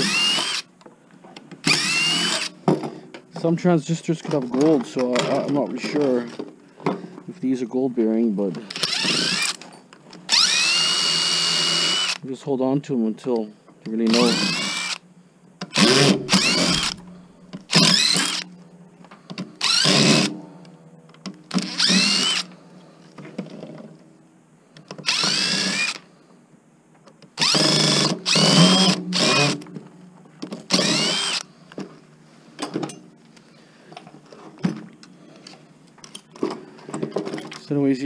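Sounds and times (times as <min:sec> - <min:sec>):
cordless drill whining: 0:00.0 - 0:00.7, 0:01.6 - 0:02.6, 0:08.6 - 0:09.6, 0:10.3 - 0:12.2, 0:14.0 - 0:15.0, 0:15.7 - 0:17.0, 0:17.7 - 0:18.5, 0:19.6 - 0:20.4, 0:21.5 - 0:22.6, 0:25.0 - 0:26.1, 0:27.4 - 0:29.7, 0:30.7 - 0:31.6.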